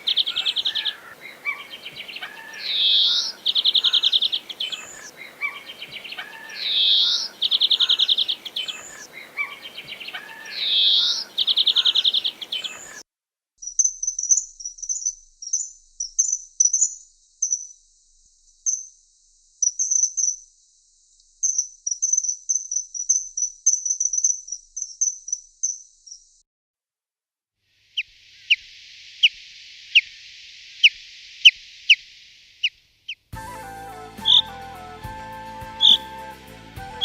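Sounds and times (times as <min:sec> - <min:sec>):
bird fast trill: 0:13.6 - 0:17.8, 0:21.4 - 0:26.2
high short bird chirps: 0:13.6 - 0:17.8.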